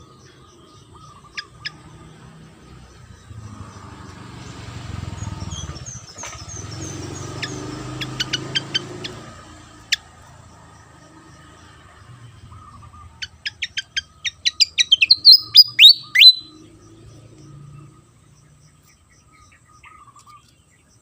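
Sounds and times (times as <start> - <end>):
bird chip calls: 0.0 - 3.8, 5.5 - 10.3, 12.4 - 16.9, 18.7 - 21.0.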